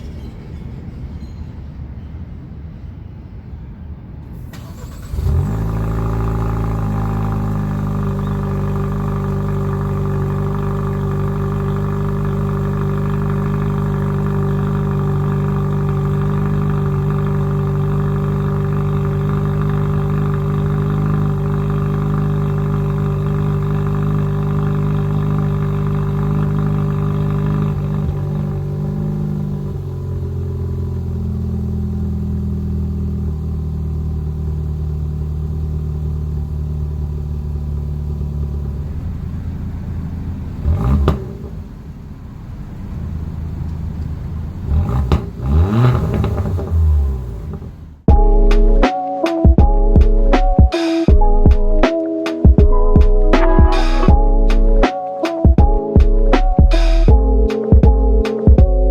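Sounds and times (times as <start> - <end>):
car engine starting and idling: 4.2 - 48.8, 52.6 - 54.9.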